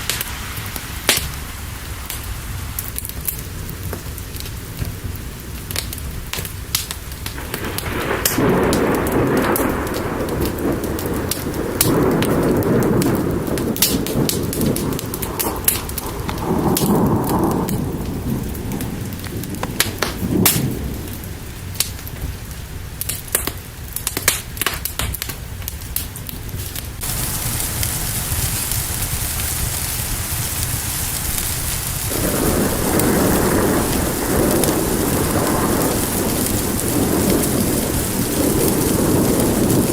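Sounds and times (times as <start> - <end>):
sharp crackles and ticks: 0.0 - 39.9
steady rain hiss: 0.0 - 39.9
rolling thunder: 6.8 - 22.8, 26.6 - 39.9.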